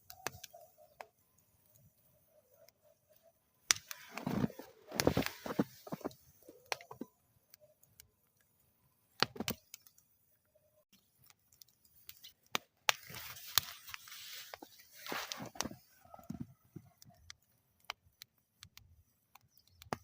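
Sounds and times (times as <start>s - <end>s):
wood fire crackling and popping: 0.0s - 10.2s, 10.9s - 20.0s
fire hissing: 3.1s - 7.1s, 11.9s - 17.2s.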